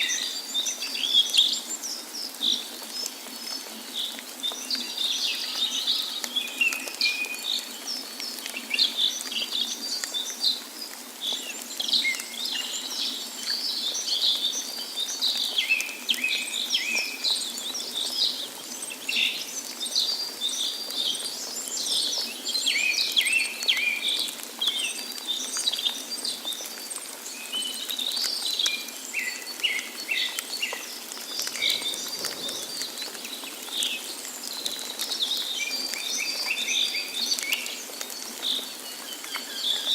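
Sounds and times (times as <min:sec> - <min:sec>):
running water: 0:00.0 - 0:39.9
birds chirping and singing: 0:27.5 - 0:39.9.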